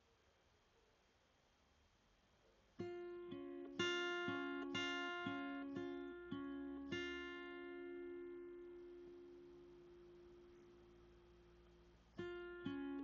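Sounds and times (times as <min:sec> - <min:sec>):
gentle acoustic guitar music: 0:02.8 - 0:13.0.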